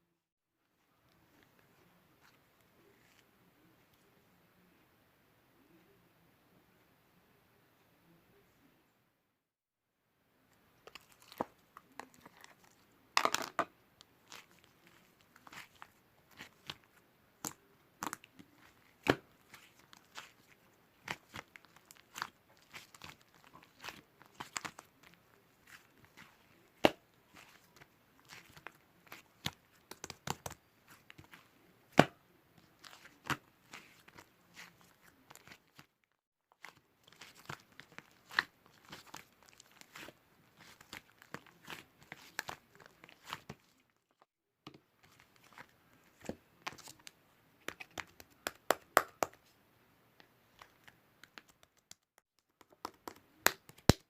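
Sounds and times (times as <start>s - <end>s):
objects handled clicking and crinkling: 10.8s - 13.7s.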